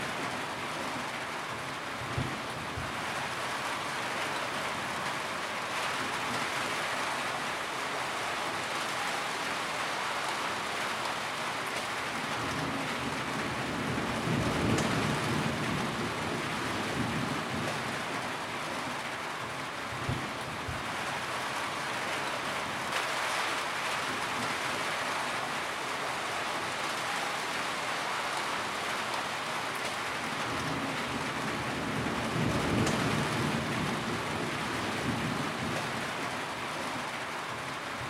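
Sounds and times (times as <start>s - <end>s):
rain on a tin roof: 0.0s - 38.0s
low rumble of thunder: 12.4s - 18.1s, 30.3s - 36.2s.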